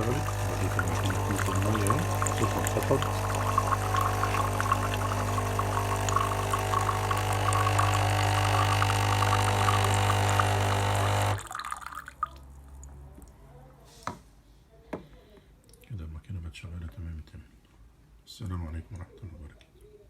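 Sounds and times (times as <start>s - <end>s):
espresso machine pump humming: 0.0s - 11.5s
water spitting and pouring: 0.0s - 12.6s.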